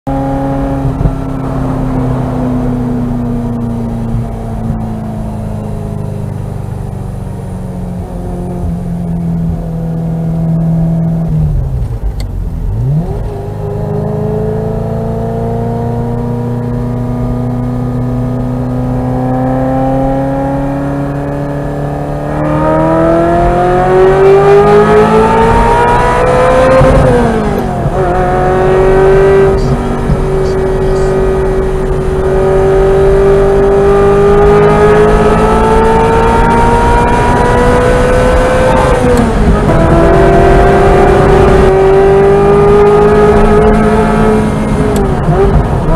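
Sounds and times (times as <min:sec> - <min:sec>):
car engine accelerating: 0:00.1 - 0:45.9.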